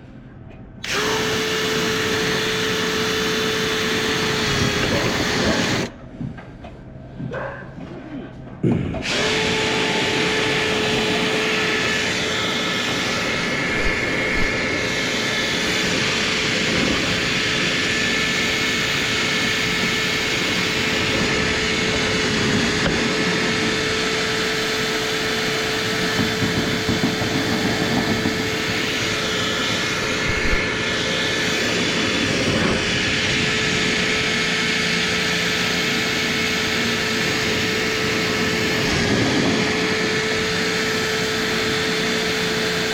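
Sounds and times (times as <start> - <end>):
power drill whining: 0.8 - 5.9, 9.0 - 42.9
rushing noise: 9.0 - 42.8.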